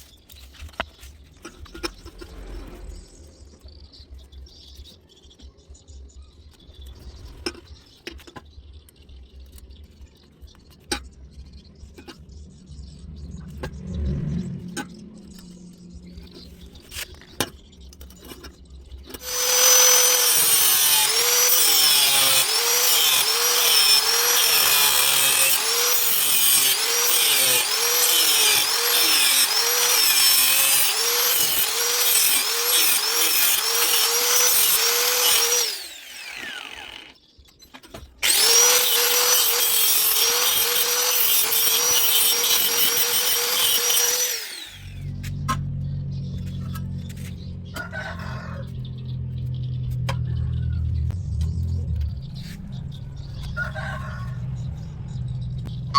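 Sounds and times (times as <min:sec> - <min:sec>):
angle grinder cutting pipe: 0:19.2 - 0:37.2, 0:38.2 - 0:45.6.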